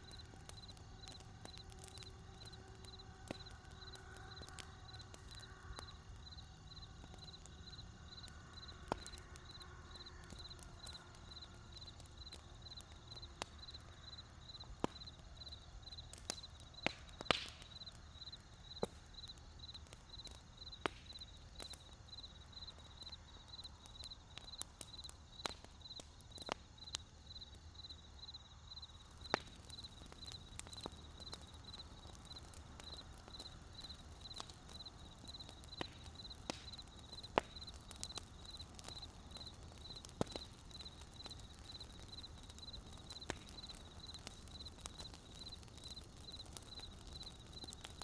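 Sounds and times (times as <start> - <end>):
campfire crackling: 0.0 - 48.0.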